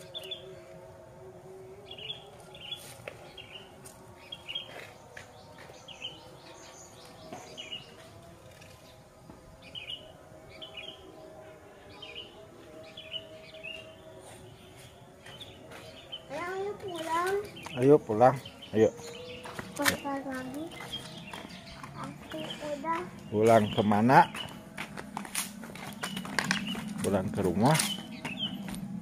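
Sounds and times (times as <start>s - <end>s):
bird chirping: 11.9s - 24.6s, 25.8s - 29.0s.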